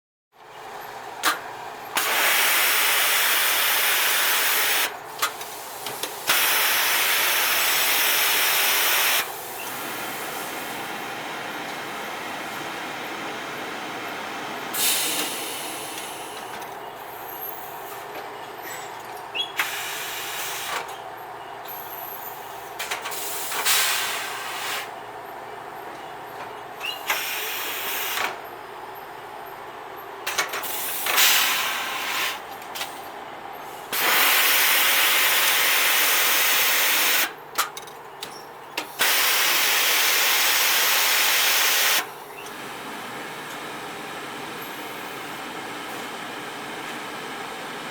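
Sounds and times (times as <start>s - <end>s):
machinery humming: 6.2s - 19.4s.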